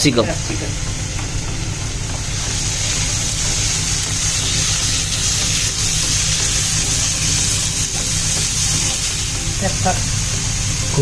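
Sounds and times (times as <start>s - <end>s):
constant low hum: 0.0s - 11.0s
paste sizzling in hot oil: 2.2s - 10.9s.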